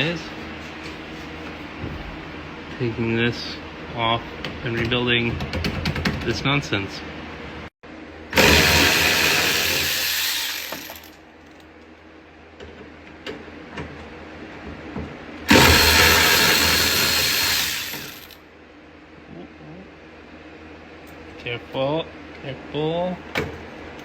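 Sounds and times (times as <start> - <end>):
power driver running: 8.3 - 11.2, 15.5 - 18.4.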